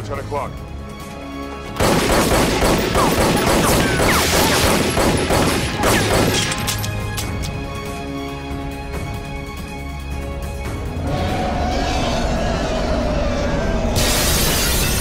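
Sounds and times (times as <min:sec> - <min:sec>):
dramatic orchestral score: 0:00.0 - 0:15.0.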